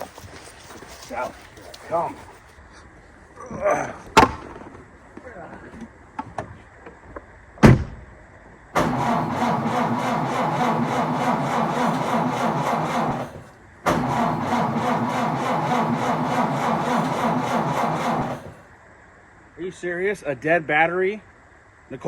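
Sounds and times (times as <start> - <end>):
car starter clattering: 8.8 - 18.7.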